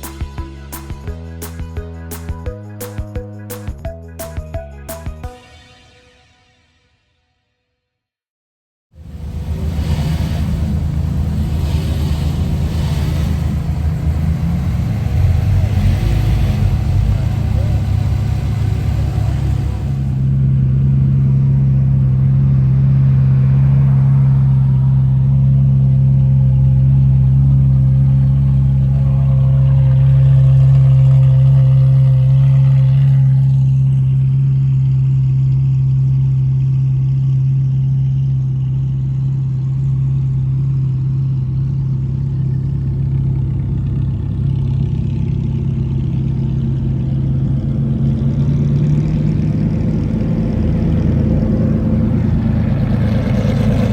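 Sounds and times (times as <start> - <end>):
higher noisy sound: 0.0 - 7.2
car engine idling: 9.0 - 53.9.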